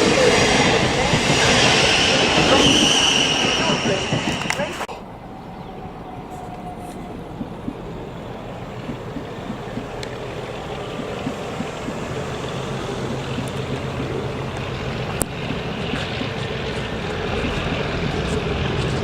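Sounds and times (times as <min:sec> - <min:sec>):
train rumbling: 0:00.0 - 0:19.0
sharp clicks: 0:06.4 - 0:19.0.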